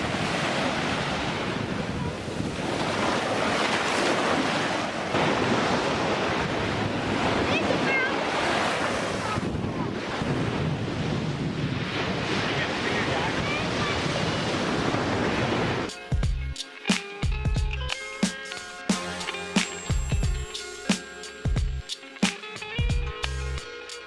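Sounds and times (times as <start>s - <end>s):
wind buffeting microphone: 0.0s - 15.9s
ocean surf breaking: 0.0s - 16.0s.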